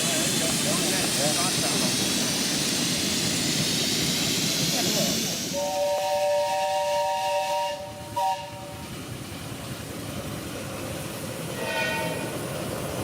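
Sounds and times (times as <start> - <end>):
steam hissing: 0.0 - 13.0
steam locomotive whistle: 5.5 - 8.9, 11.5 - 12.4.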